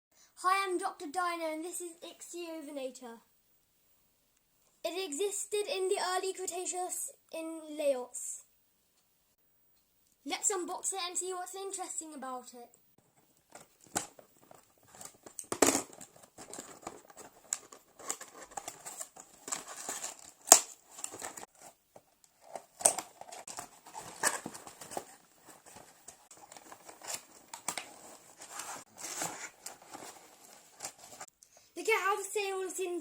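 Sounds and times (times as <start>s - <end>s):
cardboard and plastic crinkling: 13.1s - 31.3s.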